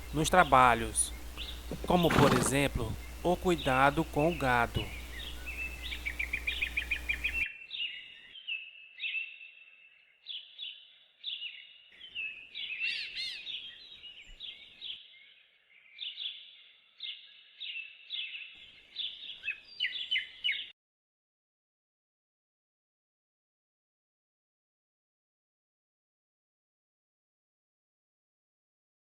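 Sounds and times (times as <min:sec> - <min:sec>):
small songbird chirping: 0:00.0 - 0:20.7.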